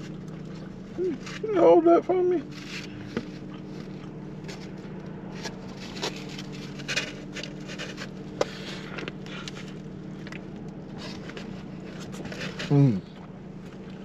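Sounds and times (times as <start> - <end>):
man chewing: 0.0 - 1.4, 2.5 - 14.0
low hum in a car cabin: 0.0 - 14.0.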